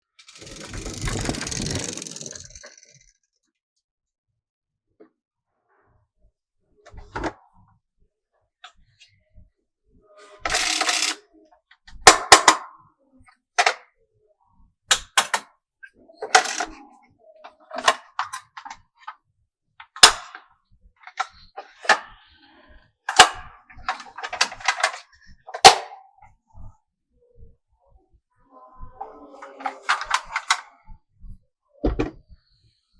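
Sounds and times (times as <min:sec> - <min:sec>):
marble rolling rattle: 0:00.2 - 0:03.1, 0:10.5 - 0:11.2, 0:16.3 - 0:16.8
marbles clacking on wood: 0:00.3 - 0:03.0, 0:10.5 - 0:11.2, 0:16.3 - 0:16.8.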